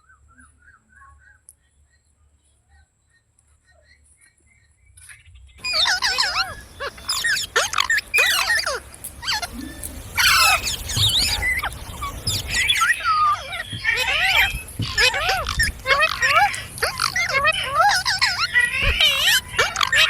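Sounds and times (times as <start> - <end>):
parrot chattering whistled calls: 5.6 - 20.0.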